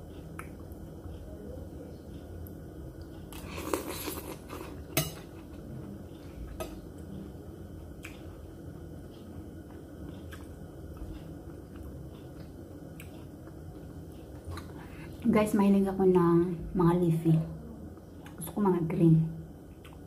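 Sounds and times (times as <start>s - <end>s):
moist squishy chewing: 9.6s - 14.8s.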